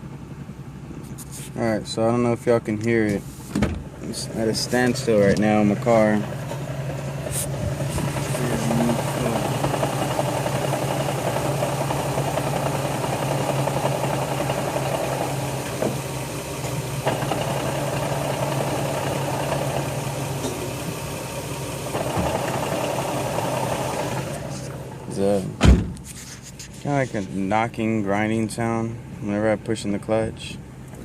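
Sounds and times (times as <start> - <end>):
car engine idling: 0.0 - 31.0
clutch knocking and grinding: 3.0 - 26.0.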